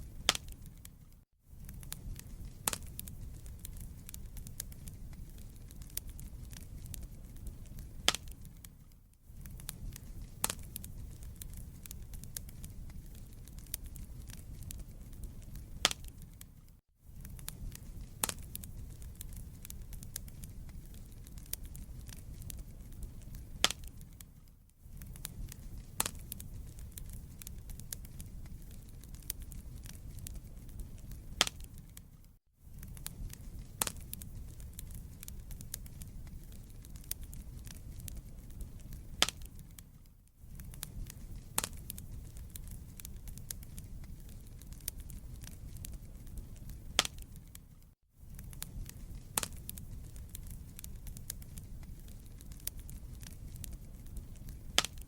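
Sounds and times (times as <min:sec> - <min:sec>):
low fire rumble: 0:00.0 - 0:55.0
wood fire crackling: 0:00.0 - 0:55.0.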